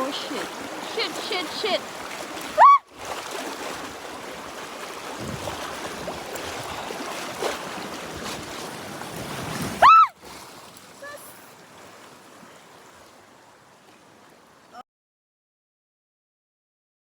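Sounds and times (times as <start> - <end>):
river rapids rushing: 0.0 - 10.2, 10.8 - 11.7
high-pitched cry: 2.6 - 2.8, 9.8 - 10.1
wind on microphone: 5.1 - 10.0.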